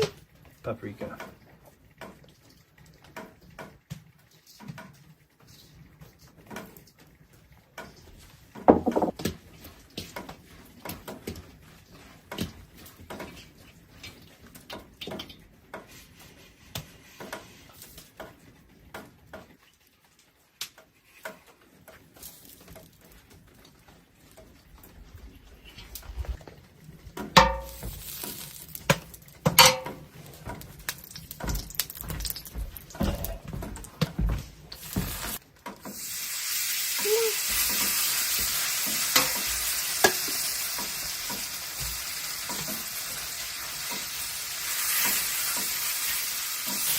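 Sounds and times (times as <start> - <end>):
dishes and utensils clicking: 29.5 - 30.1.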